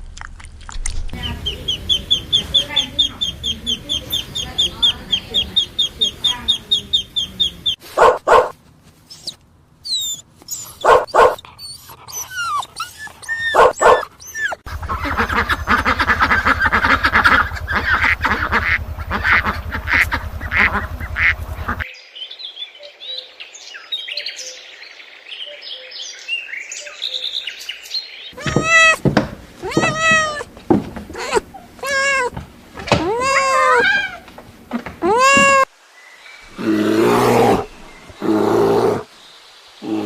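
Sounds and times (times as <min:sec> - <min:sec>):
thin high-pitched calls: 0:01.2 - 0:08.1
birds chirping: 0:01.2 - 0:08.5, 0:09.1 - 0:40.0
waterfowl calling: 0:01.2 - 0:08.5, 0:10.7 - 0:21.8, 0:28.3 - 0:32.3
dog barking: 0:07.9 - 0:08.6, 0:10.8 - 0:11.4, 0:13.4 - 0:14.1.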